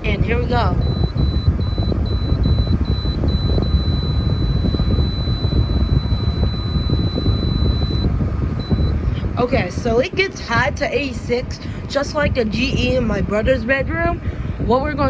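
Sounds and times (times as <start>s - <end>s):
air conditioner fan rumble: 0.0s - 15.0s
long steady beep: 0.7s - 9.0s
short control panel beeps: 0.8s - 9.0s.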